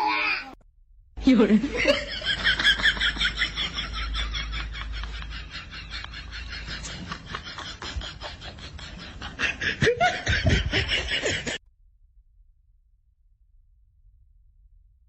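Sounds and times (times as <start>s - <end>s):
person laughing: 1.6s - 11.6s.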